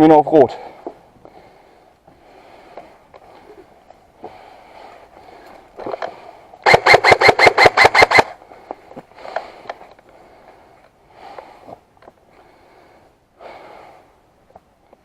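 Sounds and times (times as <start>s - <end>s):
rustling of movement: 0.5s - 6.7s
airsoft rifle rapid firing: 6.6s - 8.4s.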